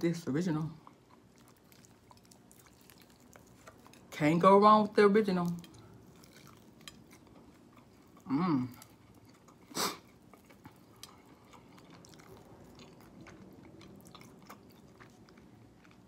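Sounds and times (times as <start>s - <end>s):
person chewing food: 0.7s - 4.2s, 5.4s - 16.0s
person humming: 8.3s - 8.7s.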